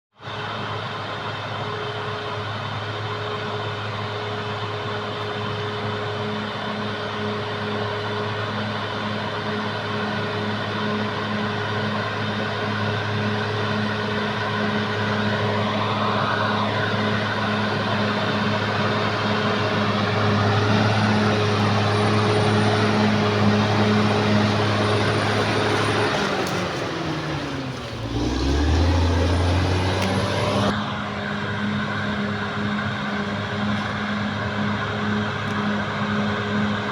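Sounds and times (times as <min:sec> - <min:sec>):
bulldozer diesel engine running: 0:02.7 - 0:31.0.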